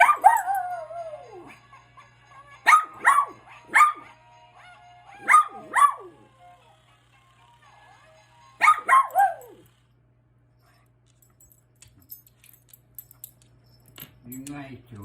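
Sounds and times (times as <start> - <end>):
dog barking: 0.0 - 1.6, 2.7 - 4.2, 5.2 - 6.3, 8.6 - 9.6
faint music: 0.0 - 15.0.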